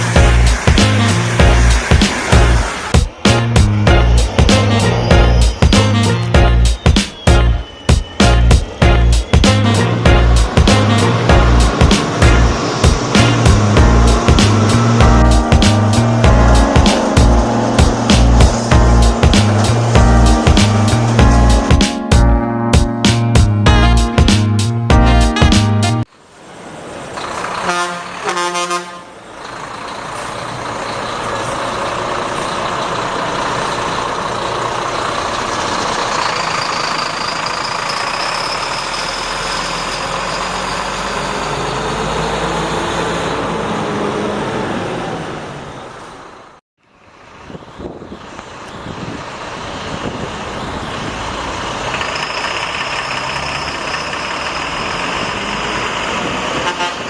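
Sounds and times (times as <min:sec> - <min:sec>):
truck diesel engine driving off: 0:00.0 - 0:22.4, 0:26.2 - 0:28.4, 0:29.0 - 0:57.0
road noise: 0:00.0 - 0:57.0
traffic noise: 0:00.0 - 0:57.0
truck horn toot: 0:03.3 - 0:23.0, 0:23.6 - 0:24.3, 0:24.9 - 0:26.1, 0:27.5 - 0:29.3, 0:56.3 - 0:57.0.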